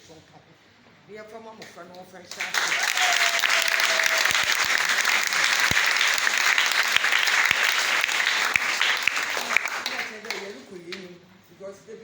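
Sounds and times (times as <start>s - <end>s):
many hands clapping: 2.3s - 11.1s.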